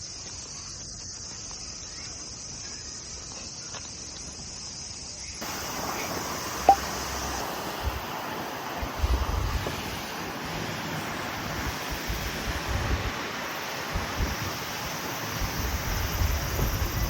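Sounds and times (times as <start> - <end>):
insects droning: 0.0 - 17.0
flowing water rushing: 5.4 - 17.0
wind buffeting microphone: 5.4 - 17.0.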